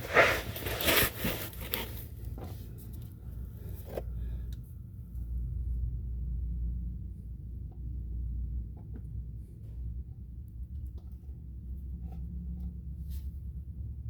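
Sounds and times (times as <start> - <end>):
rubbing and scraping handling: 0.0 - 4.4
low steady hum: 0.0 - 14.0.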